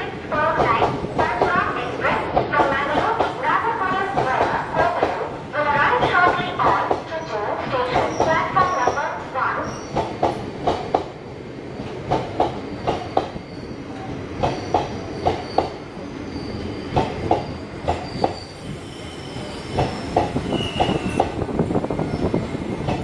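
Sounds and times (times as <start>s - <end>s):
train rumble: 0.0s - 23.0s
high wheel squeals: 14.5s - 21.2s.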